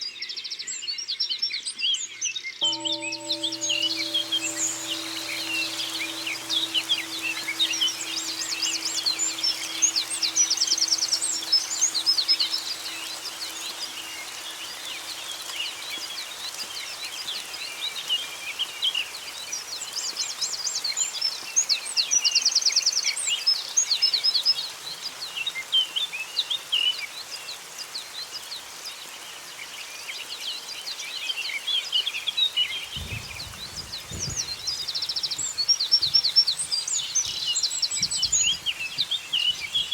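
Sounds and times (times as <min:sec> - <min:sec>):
buzzy bird trills: 0:02.6 - 0:15.4
low ringing tone: 0:02.6 - 0:16.3.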